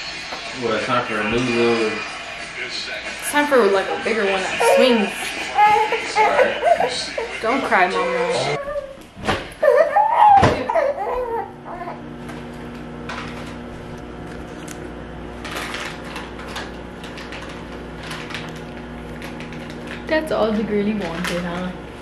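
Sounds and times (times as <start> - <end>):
baby crying: 4.5 - 9.0, 9.6 - 12.0.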